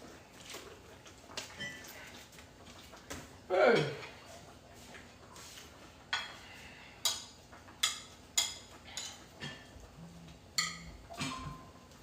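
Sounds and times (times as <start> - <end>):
cutlery clinking against plates: 1.4 - 1.9, 6.1 - 9.8, 10.6 - 11.8.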